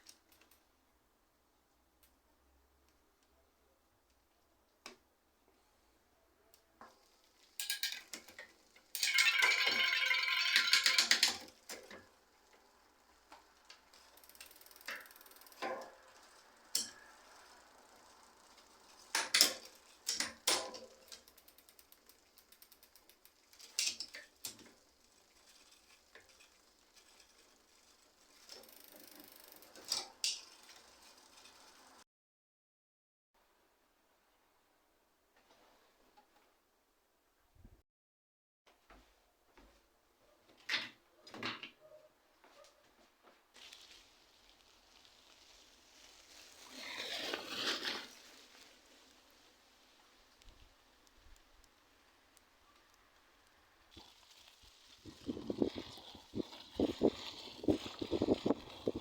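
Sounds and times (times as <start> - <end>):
bicycle parts clicking and clinking: 0.0 - 0.7, 6.5 - 32.0, 50.3 - 59.0
rapid ratchet clicks: 14.0 - 15.7, 16.6 - 31.7.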